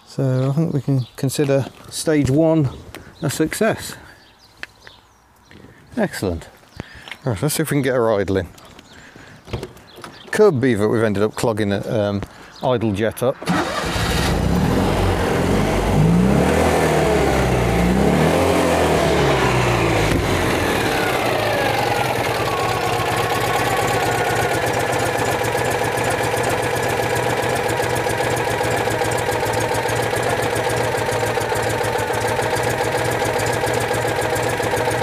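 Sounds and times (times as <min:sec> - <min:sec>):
car engine revving and idling: 0:13.7 - 0:35.0.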